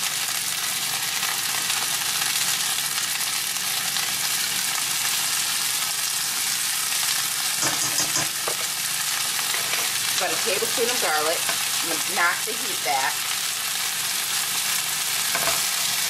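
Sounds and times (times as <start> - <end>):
green beans frying in oil: 0.0 - 16.0.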